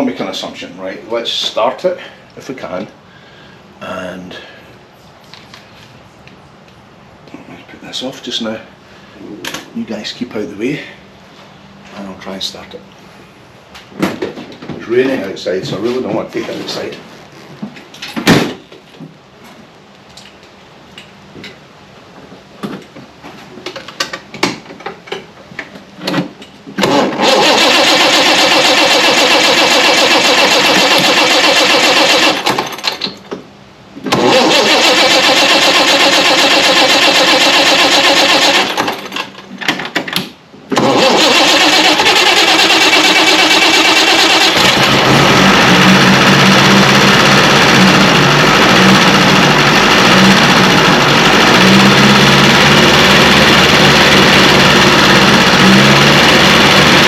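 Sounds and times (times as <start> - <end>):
engine running: 26.8 - 33.0, 34.0 - 39.5, 40.7 - 57.0
engine starter cranking: 26.8 - 33.0, 34.1 - 39.4, 40.7 - 57.0.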